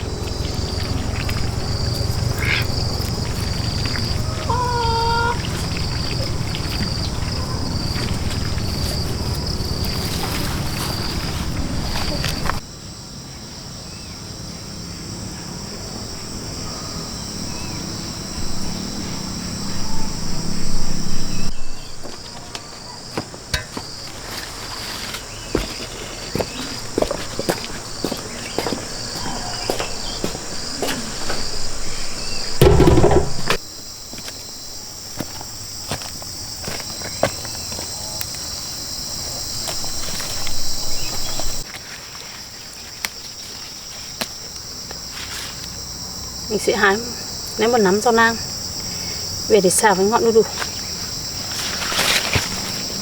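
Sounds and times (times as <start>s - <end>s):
insects chirring: 0.0s - 53.0s
heavy thud: 32.6s - 33.6s.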